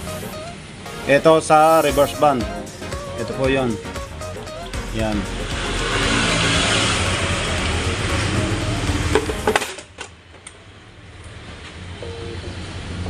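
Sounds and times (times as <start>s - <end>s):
steady hiss: 0.0s - 3.0s.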